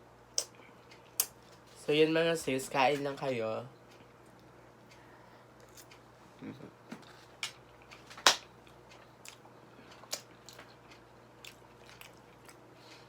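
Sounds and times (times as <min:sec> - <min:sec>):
person chewing food: 0:03.8 - 0:13.0.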